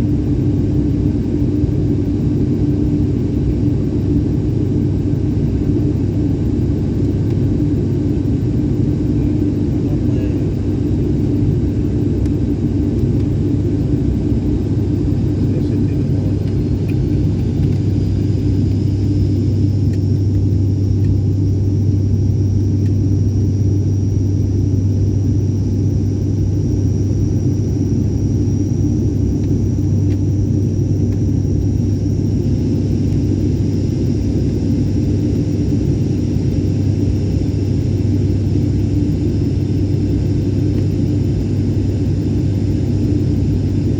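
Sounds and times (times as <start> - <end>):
airliner engines droning in cabin: 0.0 - 43.9
faint high whine: 1.0 - 43.9.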